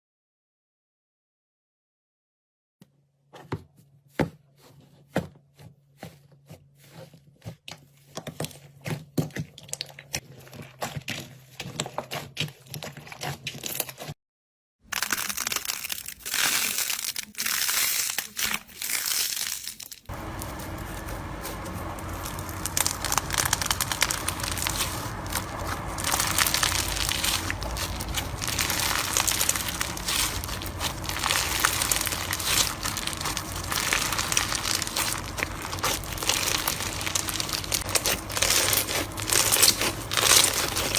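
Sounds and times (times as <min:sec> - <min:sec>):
crinkly slime crackling: 0:05.9 - 0:14.2, 0:14.9 - 0:40.9.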